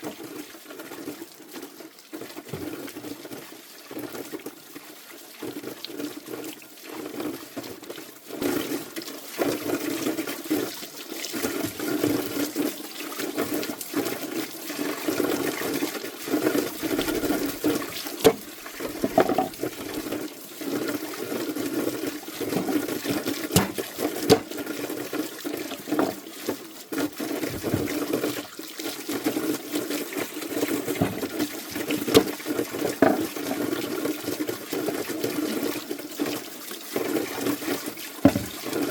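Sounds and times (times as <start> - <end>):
water splashing and sloshing: 7.0 - 38.9
sharp knocks: 18.2 - 19.6, 23.5 - 24.5, 31.0 - 31.4, 38.3 - 38.6.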